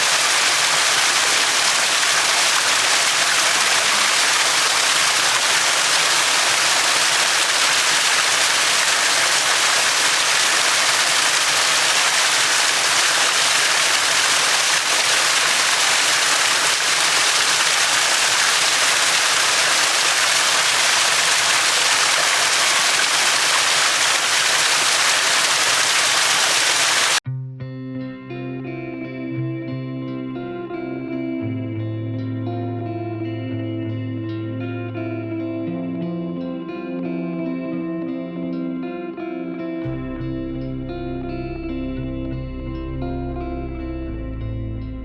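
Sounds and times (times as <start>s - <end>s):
stream flowing: 0.0s - 27.2s.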